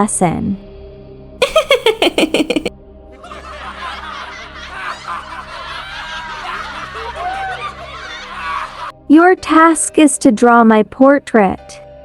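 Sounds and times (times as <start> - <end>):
children laughing and chattering: 1.4 - 2.7
soft background music: 6.4 - 12.0.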